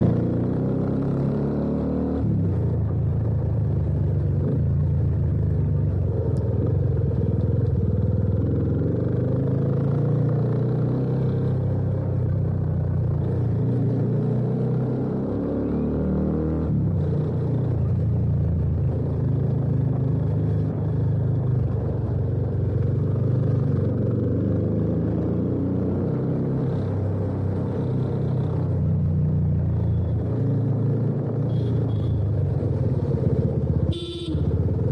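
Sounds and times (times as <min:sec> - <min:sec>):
motorcycle engine running: 0:28.6 - 0:34.9.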